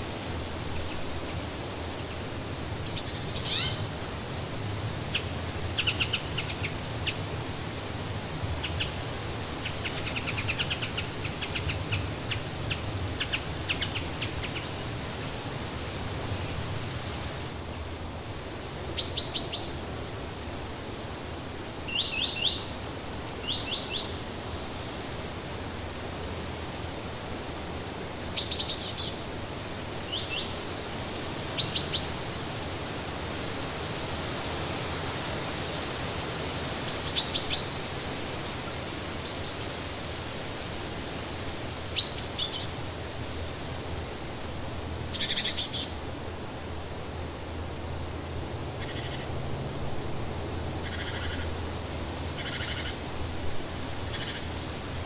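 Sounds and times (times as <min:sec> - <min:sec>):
steady background hiss: 0:00.0 - 0:55.0
songbirds chirping and trilling: 0:00.7 - 0:18.0, 0:18.7 - 0:29.3, 0:45.0 - 0:46.0, 0:50.4 - 0:53.0.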